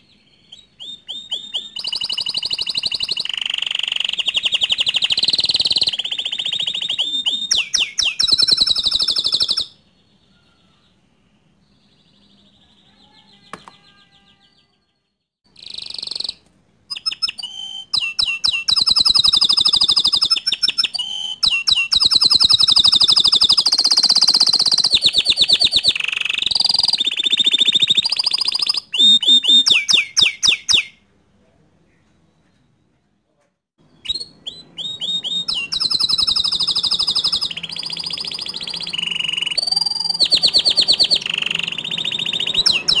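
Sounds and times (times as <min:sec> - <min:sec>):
canary singing trills: 0:00.0 - 0:31.1, 0:33.8 - 0:43.0.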